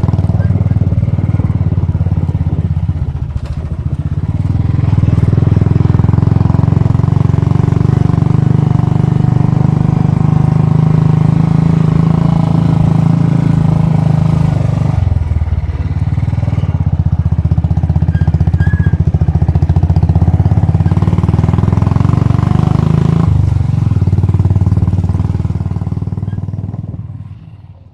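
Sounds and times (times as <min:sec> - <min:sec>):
motorcycle engine thumping: 0:00.0 - 0:06.2.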